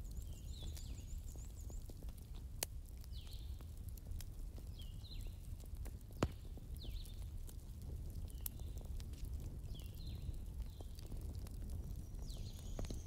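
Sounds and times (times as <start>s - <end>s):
small birds chirping: 0.0s - 3.8s, 4.5s - 7.4s, 8.1s - 13.0s.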